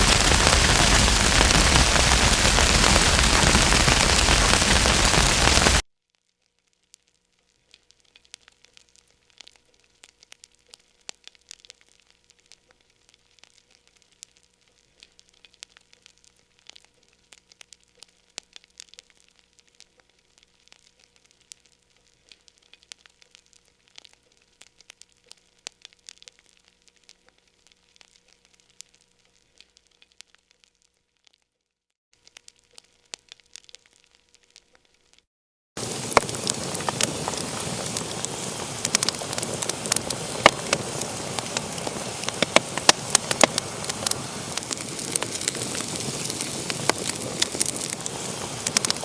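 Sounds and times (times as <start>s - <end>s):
wood fire crackling: 0.0s - 5.8s, 35.8s - 49.0s.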